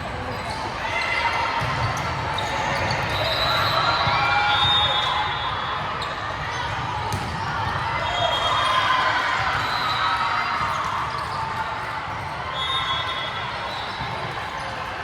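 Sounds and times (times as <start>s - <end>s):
sneakers squeaking on court floor: 0.0s - 8.8s, 10.6s - 11.4s.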